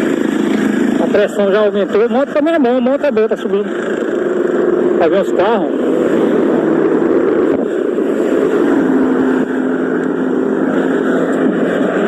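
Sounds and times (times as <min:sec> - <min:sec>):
vehicle engine humming: 0:00.0 - 0:12.0
rushing noise: 0:03.4 - 0:12.0.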